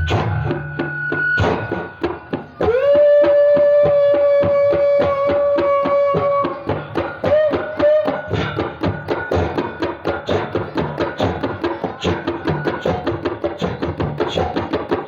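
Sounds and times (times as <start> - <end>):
whistle-like tone: 0.0 - 9.4
tabla played fast: 0.0 - 15.0.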